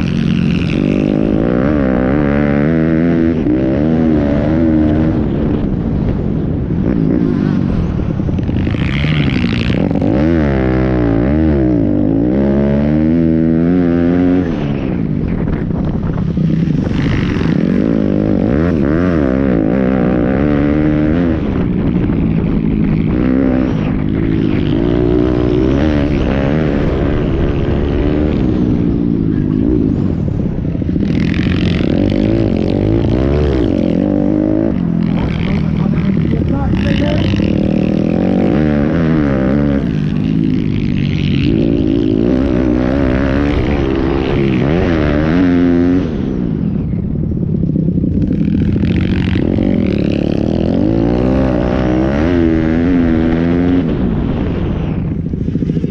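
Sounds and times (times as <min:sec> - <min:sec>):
pit bike engines revving: 0:00.0 - 0:55.9.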